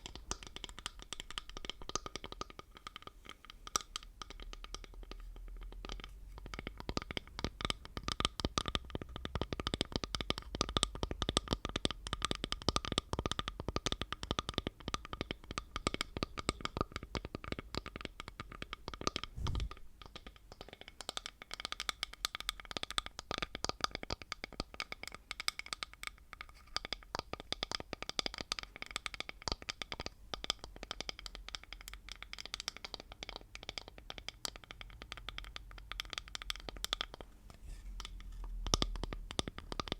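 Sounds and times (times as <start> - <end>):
dull thump: 19.4 - 20.0.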